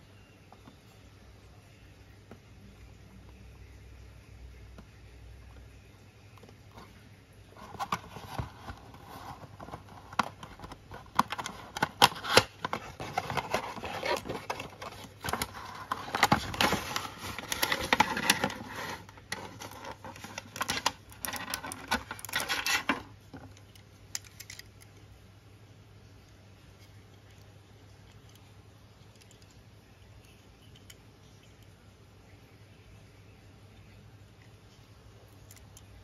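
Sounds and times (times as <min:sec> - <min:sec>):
packaging rustling and scraping: 0:07.5 - 0:23.5.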